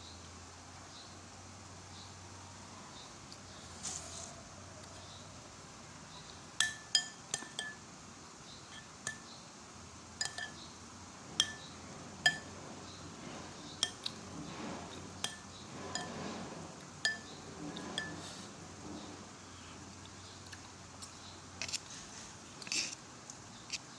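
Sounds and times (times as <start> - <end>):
spoon clinking against bowl: 6.6 - 7.8, 10.2 - 10.6, 11.4 - 11.6, 12.2 - 12.5, 17.0 - 17.3.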